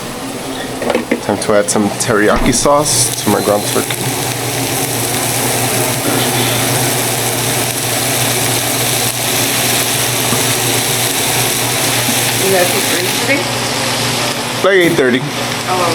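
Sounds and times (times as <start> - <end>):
small electric motor humming: 3.1 - 13.5.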